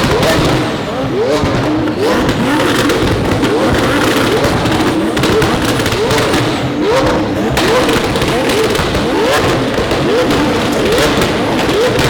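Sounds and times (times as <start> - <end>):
exhaust pops and crackles: 0.0 - 12.0
supercar engines revving: 0.0 - 12.0.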